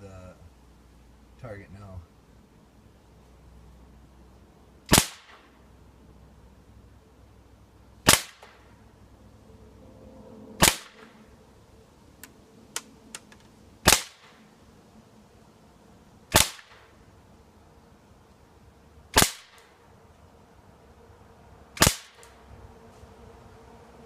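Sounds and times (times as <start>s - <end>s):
air pistol shots: 4.9s - 5.5s, 8.0s - 8.6s, 10.6s - 11.2s, 13.8s - 14.4s, 16.3s - 16.9s, 19.1s - 19.7s, 21.8s - 22.3s.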